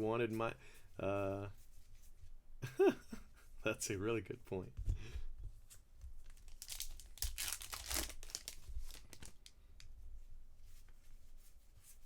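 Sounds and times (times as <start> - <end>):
foil wrapper tearing and crinkling: 6.3 - 9.5.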